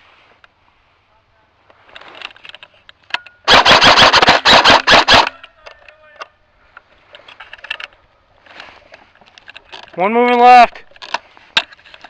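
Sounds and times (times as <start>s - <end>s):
rifle firing rapid burst: 3.5s - 5.3s.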